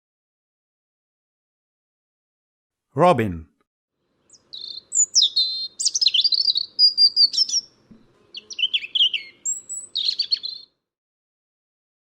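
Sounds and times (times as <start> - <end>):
robin singing: 4.2 - 10.7.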